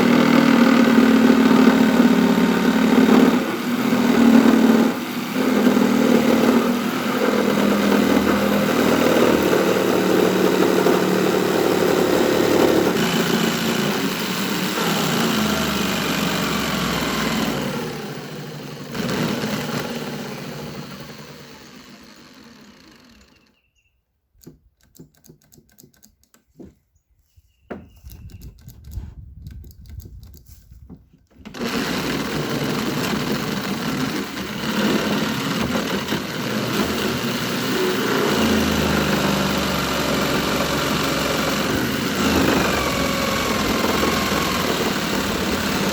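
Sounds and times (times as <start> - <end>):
motor running steadily: 0.0 - 23.5, 31.5 - 45.9
small clicks: 24.3 - 26.5, 28.0 - 30.7.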